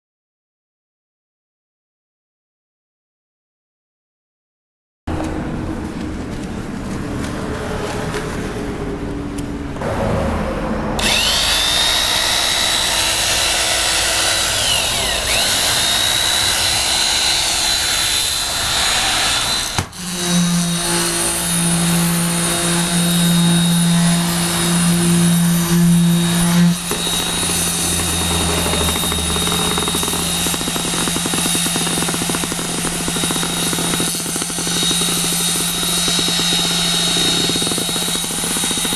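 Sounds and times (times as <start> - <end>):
concrete vibrator motor whining: 11.0 - 38.9.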